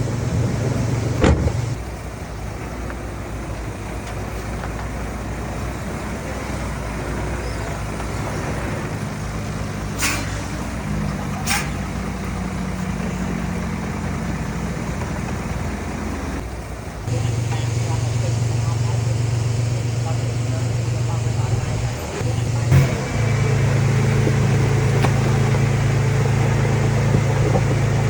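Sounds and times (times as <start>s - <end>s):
heavy diesel machinery running: 0.0s - 28.0s
short air hisses: 9.9s - 10.8s, 11.4s - 11.9s.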